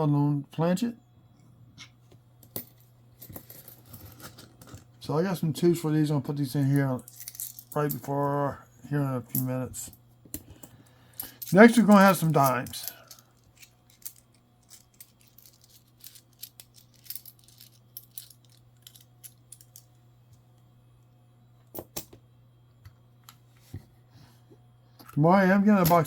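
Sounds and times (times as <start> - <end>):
faint low hum: 0.0 - 26.0
coins clinking: 2.5 - 4.7, 7.0 - 8.1, 11.2 - 19.9.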